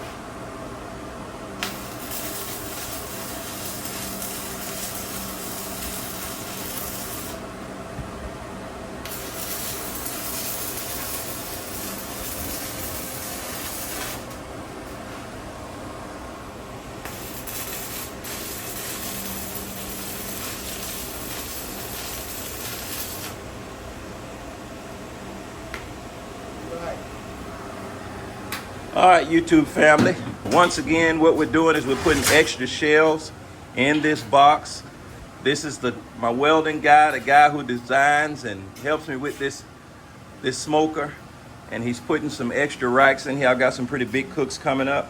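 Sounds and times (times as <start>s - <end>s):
electric arc welding hiss: 1.6s - 7.6s, 9.0s - 15.0s, 16.9s - 23.6s.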